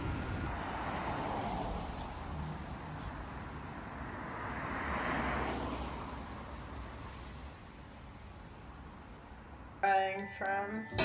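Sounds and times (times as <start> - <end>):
car tyre noise passing: 0.0 - 9.6.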